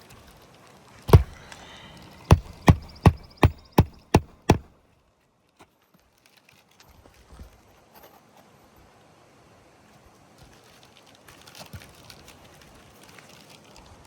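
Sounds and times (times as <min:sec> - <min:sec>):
hammer blows on nail: 0:01.1 - 0:04.7.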